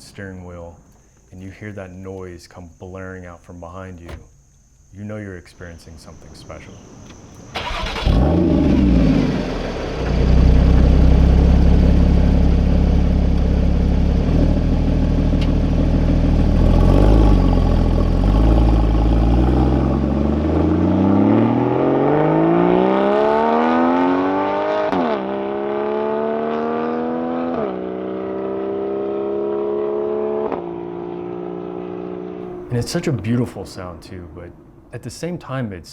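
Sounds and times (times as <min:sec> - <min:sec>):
car engine accelerating with upshifts: 0:06.1 - 0:33.7
sports car engine revving: 0:06.1 - 0:34.0.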